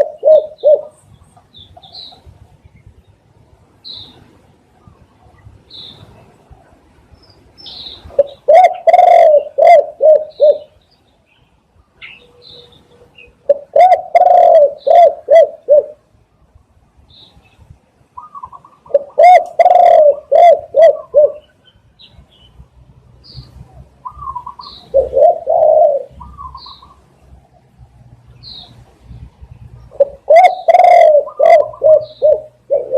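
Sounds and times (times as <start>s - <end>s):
dove cooing: 0.0s - 1.0s, 8.0s - 10.8s, 12.0s - 16.0s, 18.2s - 21.6s, 24.0s - 27.0s, 29.8s - 32.9s
small birds chirping: 0.0s - 3.2s, 3.8s - 9.6s, 10.2s - 15.2s, 17.0s - 32.9s.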